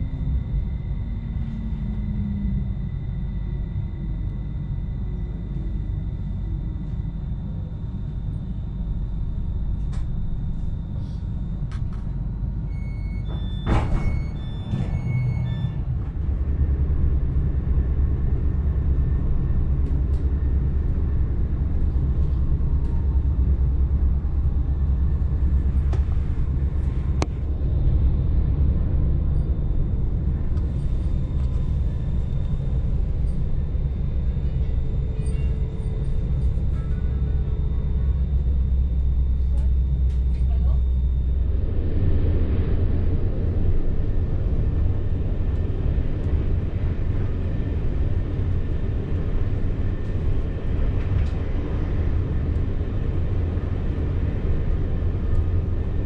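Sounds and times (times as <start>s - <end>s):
train cabin rumble: 0.0s - 56.0s.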